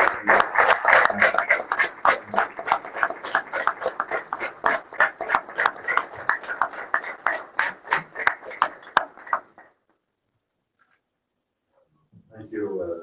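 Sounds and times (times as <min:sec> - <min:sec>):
small audience applauding: 0:00.0 - 0:09.8.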